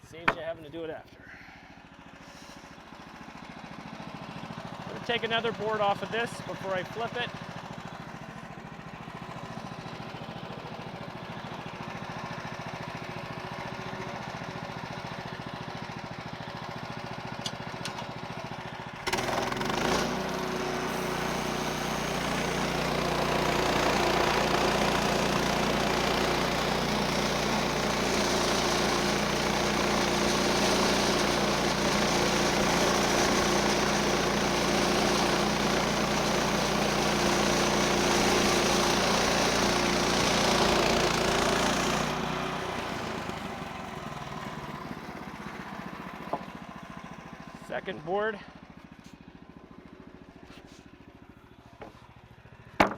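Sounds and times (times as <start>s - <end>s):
sawmill engine running: 0.0s - 52.9s
band saw cutting log: 0.1s - 0.8s, 4.9s - 7.4s, 19.0s - 44.7s.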